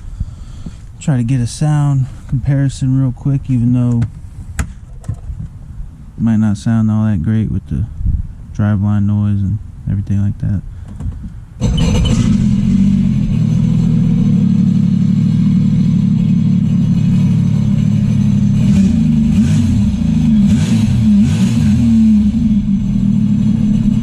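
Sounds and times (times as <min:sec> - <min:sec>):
watercraft engine idling and revving: 0:11.6 - 0:24.0.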